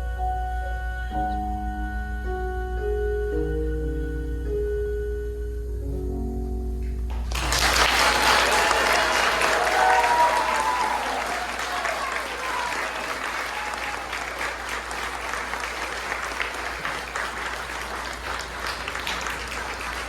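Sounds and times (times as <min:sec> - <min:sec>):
audience applauding: 0:07.1 - 0:20.0.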